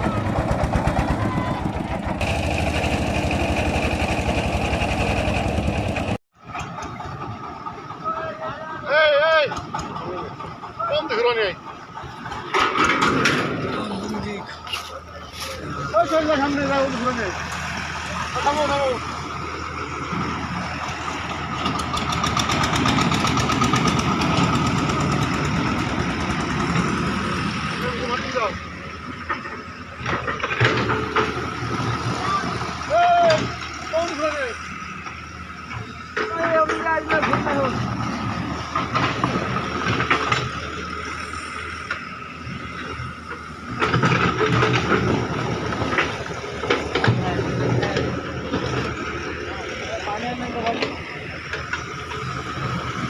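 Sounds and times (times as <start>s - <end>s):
diesel engine whining and clattering: 0.0s - 53.0s
vehicle knocks and rattles: 9.5s - 14.1s, 43.8s - 49.0s.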